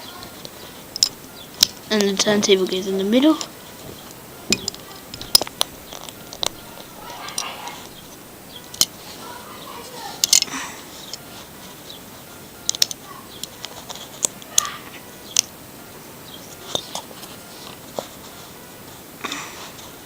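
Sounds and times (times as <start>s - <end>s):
plastic bricks clicking: 4.5s - 9.0s, 10.2s - 11.2s, 12.7s - 14.7s.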